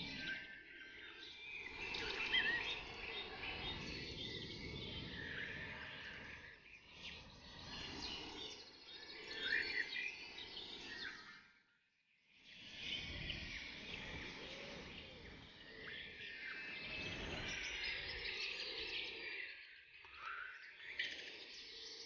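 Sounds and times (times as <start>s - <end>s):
birds chirping and singing: 0.0s - 11.3s, 12.7s - 22.0s.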